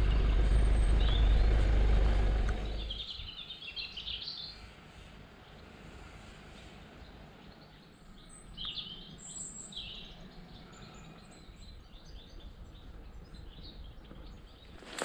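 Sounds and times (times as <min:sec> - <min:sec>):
low steady rumble: 0:00.0 - 0:03.1
small birds chirping: 0:00.0 - 0:04.8, 0:06.5 - 0:15.0.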